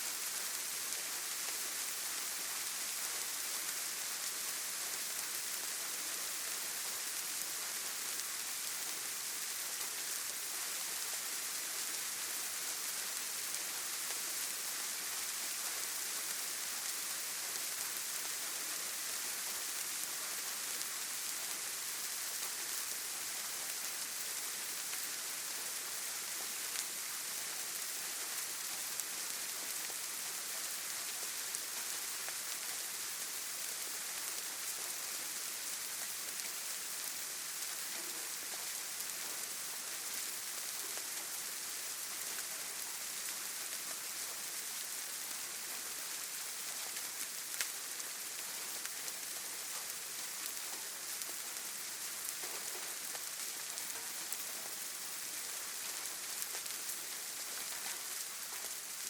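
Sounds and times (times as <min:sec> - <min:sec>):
rain falling on foliage: 0:00.0 - 0:59.0.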